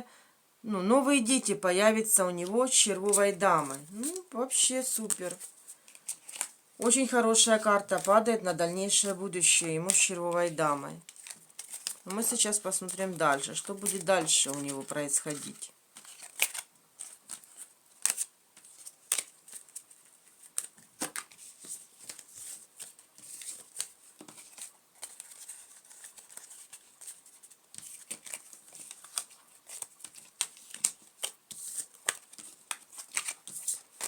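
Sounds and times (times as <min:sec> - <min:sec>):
playing cards flicking and clicking: 0:20.4 - 0:34.0.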